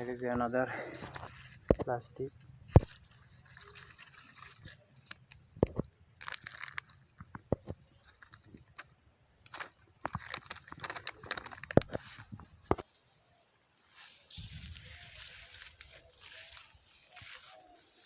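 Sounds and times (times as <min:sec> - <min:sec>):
plastic litter crinkling: 0:02.8 - 0:07.3, 0:09.5 - 0:12.4.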